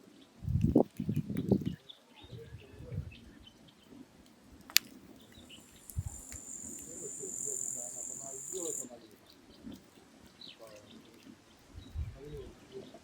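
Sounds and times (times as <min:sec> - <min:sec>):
firewood crackling: 0:03.8 - 0:08.9
insect buzzing: 0:05.4 - 0:08.9.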